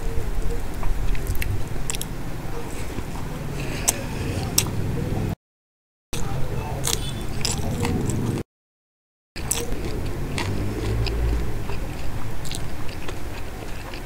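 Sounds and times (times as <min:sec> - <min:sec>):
mouth chewing: 0:00.5 - 0:05.4, 0:06.2 - 0:08.4, 0:09.4 - 0:14.0
wet mouth clicks: 0:01.1 - 0:02.1, 0:06.2 - 0:08.2, 0:09.4 - 0:14.0.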